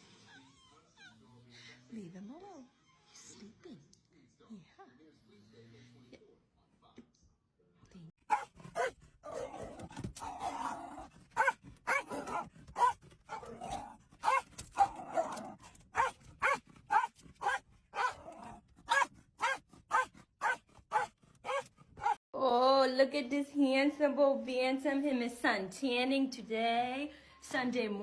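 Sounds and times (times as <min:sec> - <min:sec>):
dog barking: 0:08.3 - 0:22.2
dog growling: 0:08.3 - 0:22.2.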